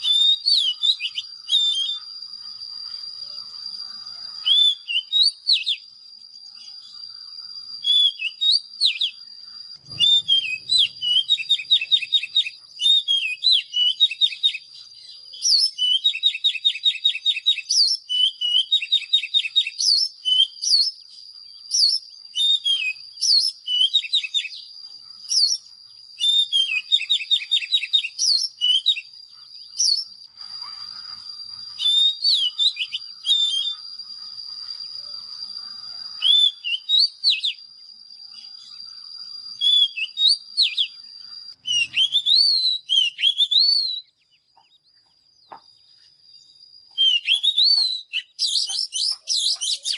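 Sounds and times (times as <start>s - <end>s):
bird singing: 0.0s - 49.9s
steady high-pitched tone: 29.4s - 39.6s.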